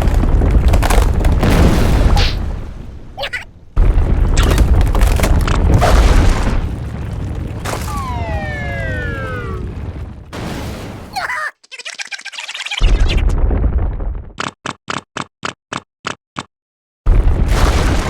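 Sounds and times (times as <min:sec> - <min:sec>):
deep earthquake rumble: 0:00.0 - 0:11.0, 0:12.9 - 0:14.4
downward gliding tone: 0:07.9 - 0:09.8.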